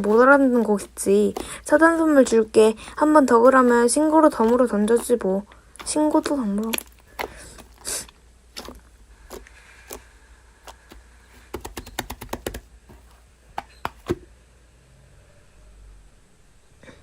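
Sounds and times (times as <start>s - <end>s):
sharp clicks and taps: 10.7s - 13.0s, 13.6s - 14.2s.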